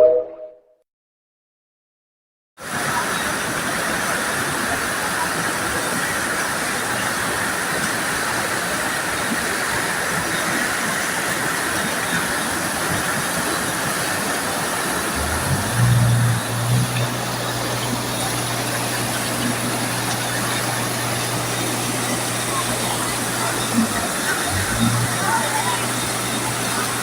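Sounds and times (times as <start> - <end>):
floodwater rushing: 3.3 - 27.0
low engine hum: 15.1 - 27.0.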